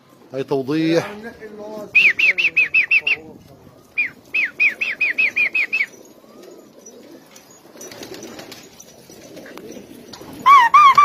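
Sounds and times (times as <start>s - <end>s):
pigeons shuffling: 0.2s - 11.0s
pigeon wings flapping: 4.2s - 11.0s
bird chirping rapidly: 10.4s - 11.0s.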